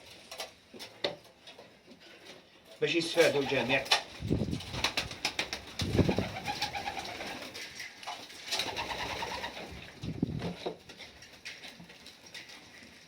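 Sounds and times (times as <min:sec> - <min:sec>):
pigeons cooing: 0:05.5 - 0:07.6, 0:08.6 - 0:09.9.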